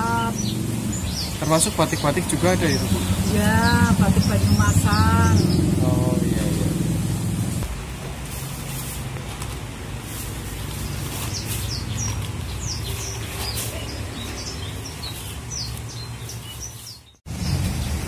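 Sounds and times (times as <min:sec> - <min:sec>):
small birds chirping: 0:00.0 - 0:06.8, 0:10.0 - 0:18.0
low background rumble: 0:00.0 - 0:08.2.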